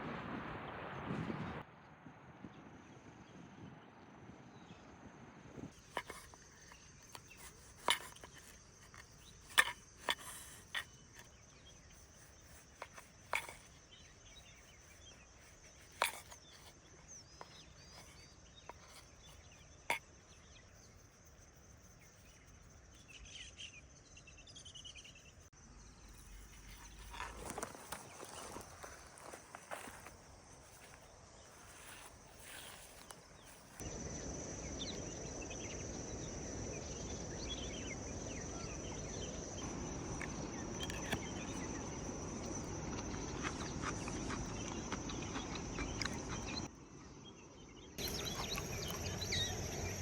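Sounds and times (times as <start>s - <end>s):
forest insects droning: 3.7s - 50.0s
bird-like chirps: 21.8s - 50.0s
footsteps: 26.4s - 33.8s.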